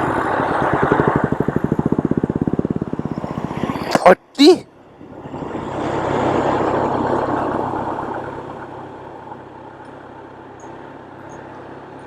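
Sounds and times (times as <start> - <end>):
low engine hum: 0.0 - 12.0
vehicle passing by: 5.0 - 8.9.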